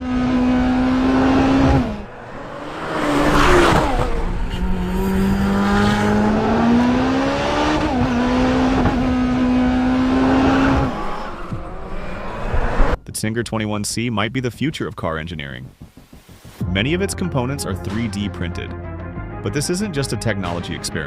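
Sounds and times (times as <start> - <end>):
car engine revving: 0.0 - 13.0
whooshing: 0.9 - 7.0.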